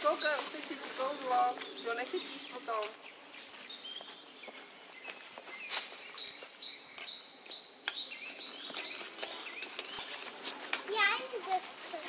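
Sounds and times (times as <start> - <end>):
faint bird chirps: 1.6 - 10.2.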